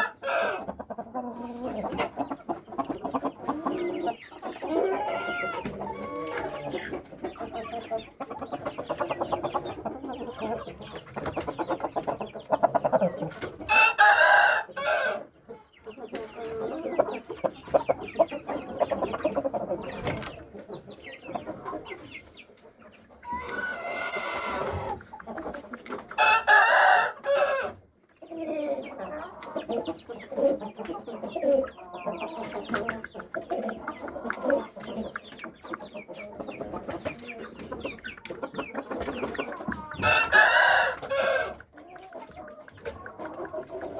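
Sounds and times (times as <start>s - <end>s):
roosters crowing: 0.0s - 0.7s, 4.6s - 6.8s, 13.7s - 15.3s, 23.2s - 25.0s, 26.2s - 27.8s, 39.8s - 41.6s
chickens clucking: 0.0s - 43.9s.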